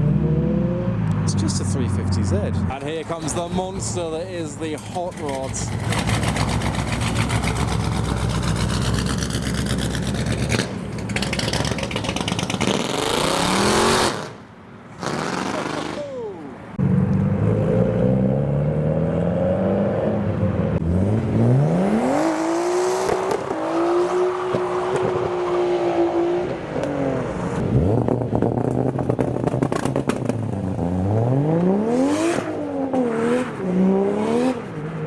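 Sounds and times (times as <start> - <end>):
car engines revving: 0.0 - 35.0
sharp exhaust crackles: 2.9 - 14.4, 15.0 - 16.0.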